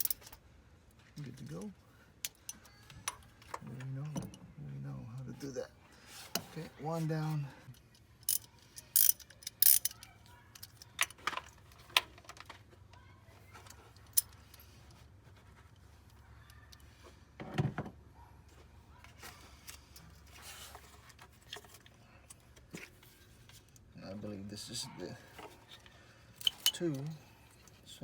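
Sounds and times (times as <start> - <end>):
metal hand tools clinking: 8.2 - 10.0, 26.4 - 27.1.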